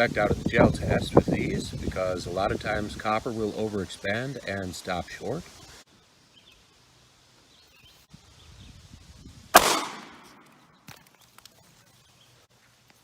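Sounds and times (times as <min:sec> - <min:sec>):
pistol shot: 0:09.6 - 0:10.6
faint handling noise: 0:10.1 - 0:13.0.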